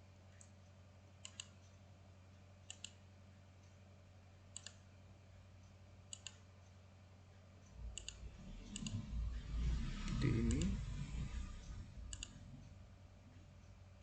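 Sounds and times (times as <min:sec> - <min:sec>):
faint low hum: 0:00.0 - 0:14.0
computer mouse clicking: 0:01.2 - 0:01.8, 0:02.6 - 0:03.0, 0:04.5 - 0:04.9, 0:06.1 - 0:06.5, 0:07.9 - 0:09.1, 0:12.1 - 0:12.4.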